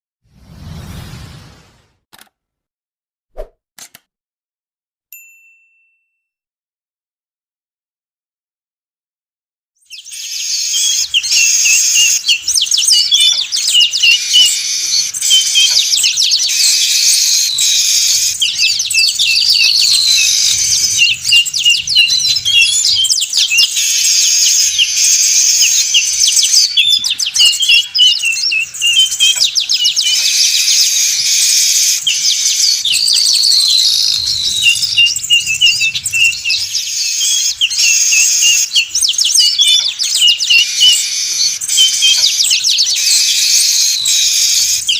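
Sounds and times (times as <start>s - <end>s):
flock of birds chattering: 10.0s - 44.9s.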